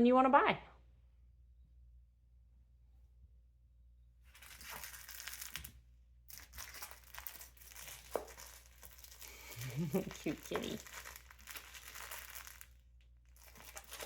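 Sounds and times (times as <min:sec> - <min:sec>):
crinkle toy rustling: 0:04.3 - 0:14.0.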